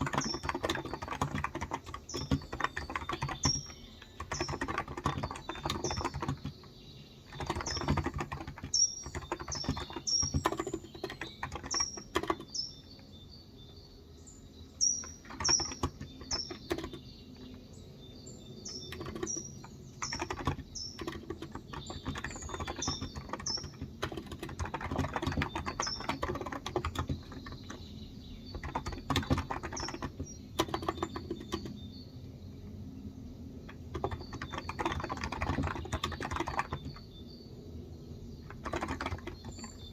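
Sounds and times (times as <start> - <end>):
keyboard typing: 0.0 - 13.1, 14.8 - 17.6, 18.4 - 31.8, 33.6 - 37.2, 38.3 - 39.9
bird chirping: 0.0 - 39.9.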